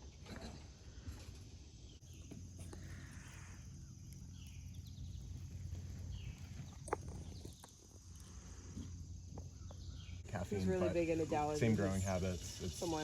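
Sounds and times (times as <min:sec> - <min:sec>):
faint bird chirps: 0:01.9 - 0:10.4.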